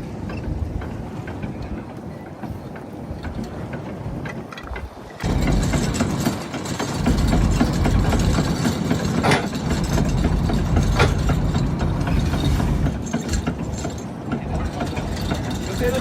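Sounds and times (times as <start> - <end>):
sharp knocks: 4.7 - 15.8
boat engine running: 4.8 - 16.0.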